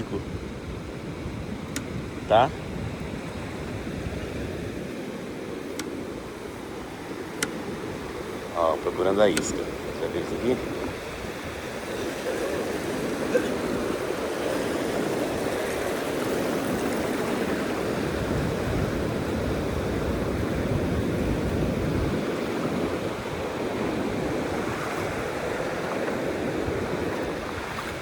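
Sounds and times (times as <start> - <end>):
waves breaking and receding: 0.0 - 28.0.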